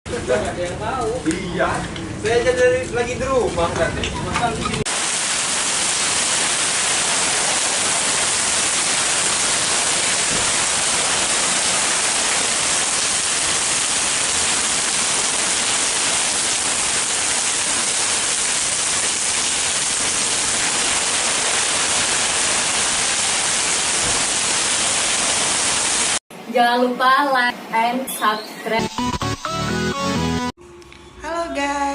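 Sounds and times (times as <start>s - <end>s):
heavy rain pouring: 4.9s - 26.2s.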